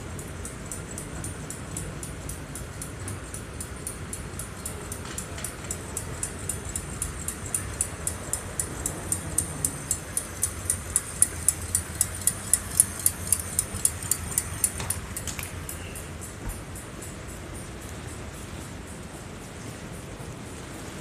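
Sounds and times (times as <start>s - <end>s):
rapid even clicking: 0.0s - 16.8s.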